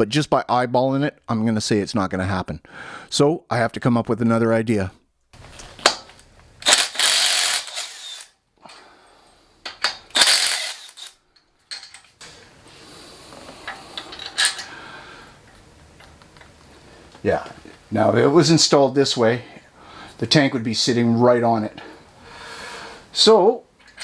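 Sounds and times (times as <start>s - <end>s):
metal parts clicking: 5.6s - 8.3s, 9.6s - 12.2s, 14.0s - 14.7s
metallic rattling scrapes: 10.1s - 11.1s.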